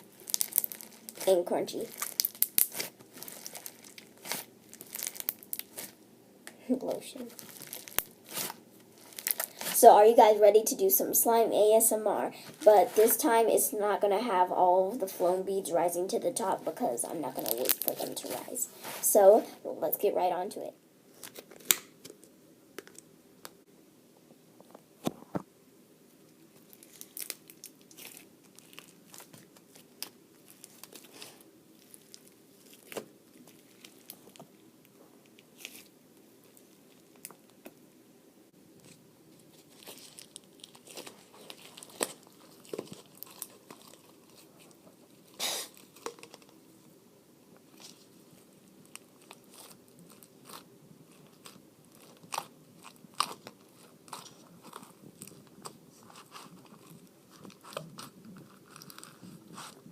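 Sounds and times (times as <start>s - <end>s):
slime crunching and crackling: 0.0s - 6.0s, 6.9s - 9.9s, 17.3s - 19.4s, 26.5s - 34.6s, 35.2s - 37.7s, 38.8s - 46.6s, 47.7s - 59.9s.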